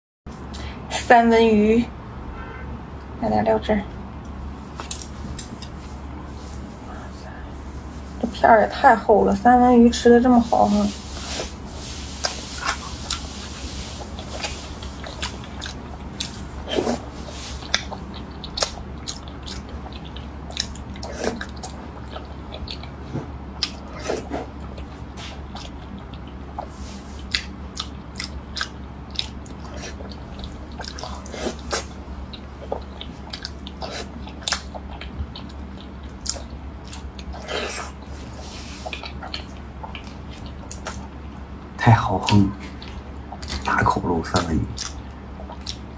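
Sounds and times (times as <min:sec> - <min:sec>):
steady low hum: 0:00.3 - 0:45.9
person chewing raw fish: 0:11.1 - 0:41.4, 0:42.2 - 0:43.8, 0:44.4 - 0:45.9.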